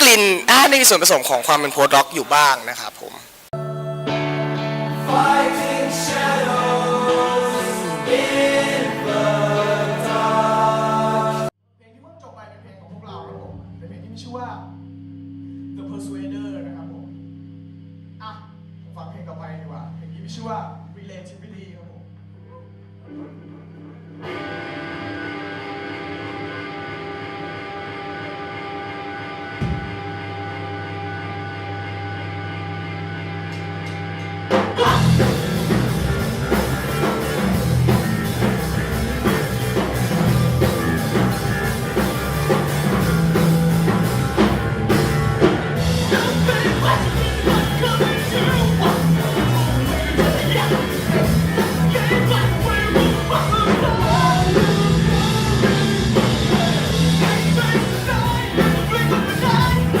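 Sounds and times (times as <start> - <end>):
ringing guitar chord: 3.6 - 10.6
rock band playing: 3.6 - 11.5, 24.2 - 60.0.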